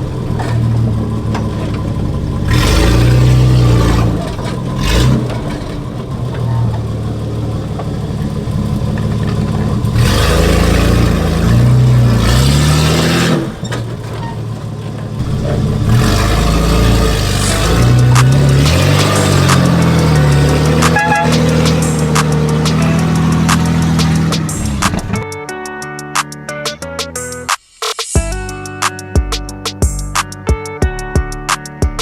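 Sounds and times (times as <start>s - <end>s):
engine revving with no exhaust: 0.0s - 25.3s.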